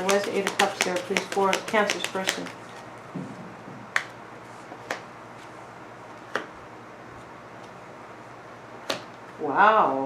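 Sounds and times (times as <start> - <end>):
cards clicking while shuffled: 0.0 - 2.6.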